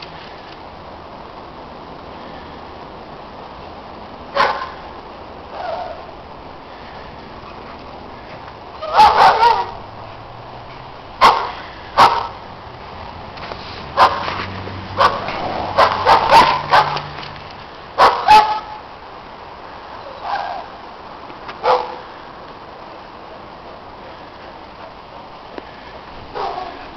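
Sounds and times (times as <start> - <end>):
dogs barking: 4.3 - 4.8, 8.8 - 9.8, 11.2 - 12.4, 14.0 - 14.3, 15.0 - 17.1, 18.0 - 18.8, 21.6 - 22.0, 26.3 - 26.9.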